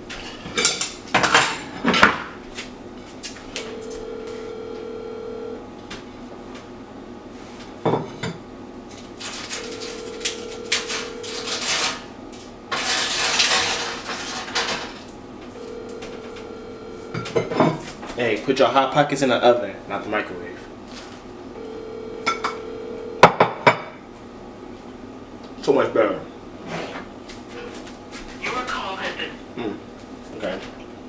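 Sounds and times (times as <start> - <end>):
dishes and utensils clattering: 0.2 - 2.3, 12.7 - 15.0, 17.1 - 17.9
telephone ringback tone: 3.6 - 5.6, 9.5 - 12.0, 15.5 - 17.6, 21.6 - 23.6.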